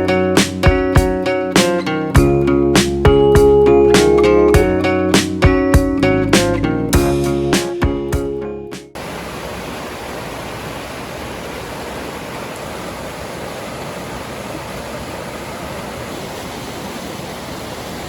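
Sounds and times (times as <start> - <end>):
waterfall rushing water: 9.0 - 18.0.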